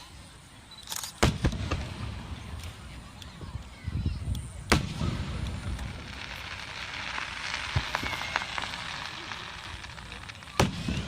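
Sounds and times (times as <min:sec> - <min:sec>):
fireworks crackling: 0:00.0 - 0:11.0
fireworks bang: 0:01.2 - 0:02.5, 0:04.6 - 0:11.0.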